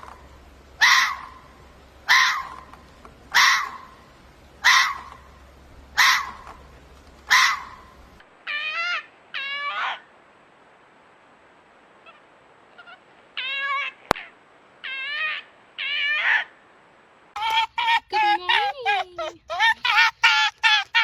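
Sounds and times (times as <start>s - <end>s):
fox high wavering calls: 0.0s - 6.7s, 7.3s - 10.1s, 12.0s - 16.6s, 17.4s - 21.0s
fox screaming: 0.8s - 4.0s, 4.6s - 5.2s, 6.0s - 6.6s, 7.3s - 10.1s, 12.8s - 16.5s, 17.4s - 21.0s.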